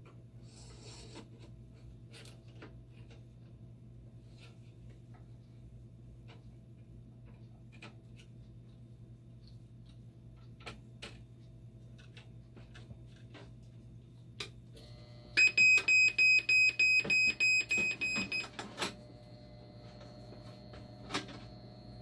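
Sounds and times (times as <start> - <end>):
faint electronic whine: 17.0 - 22.0.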